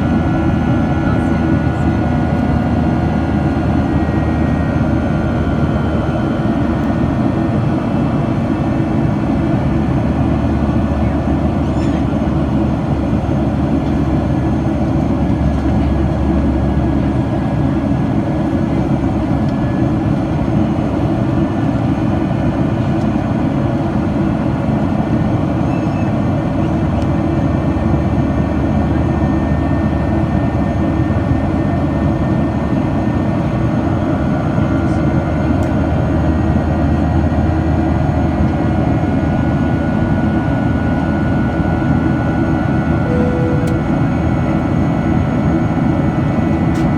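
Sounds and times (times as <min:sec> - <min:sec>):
jet engine cabin rumble: 0:00.0 - 0:46.9
faint high whine: 0:43.0 - 0:44.8.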